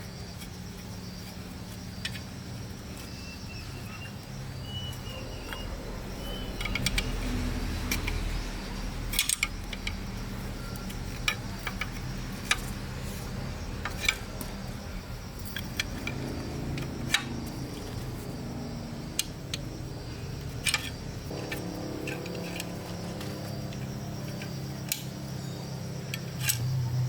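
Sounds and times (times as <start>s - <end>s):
steady low hum: 0.0s - 27.0s
metal parts clinking: 9.0s - 13.2s, 20.4s - 27.0s.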